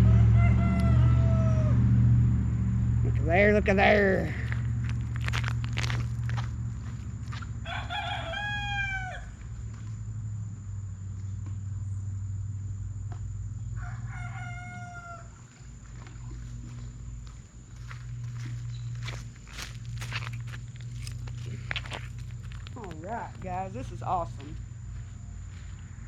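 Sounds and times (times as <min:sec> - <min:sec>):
rooster crowing: 0:00.0 - 0:02.1, 0:07.3 - 0:09.4, 0:13.6 - 0:16.8
low hum: 0:00.0 - 0:26.0.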